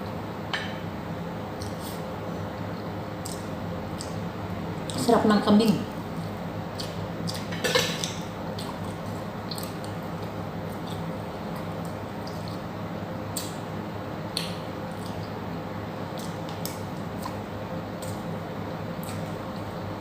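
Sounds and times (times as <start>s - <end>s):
steady low hum: 0.0s - 20.0s
wet chewing and smacking: 3.2s - 5.1s, 6.2s - 13.7s, 14.3s - 18.3s, 19.0s - 19.7s.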